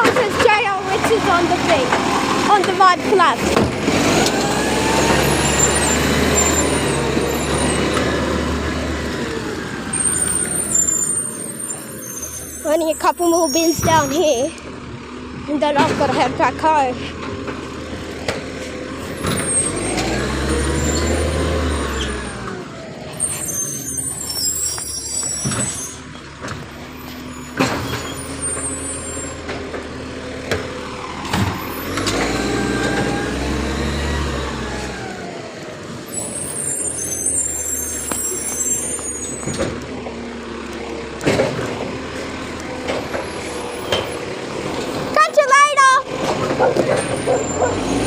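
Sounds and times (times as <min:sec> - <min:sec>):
garbage truck engine revving: 0:00.0 - 0:48.0.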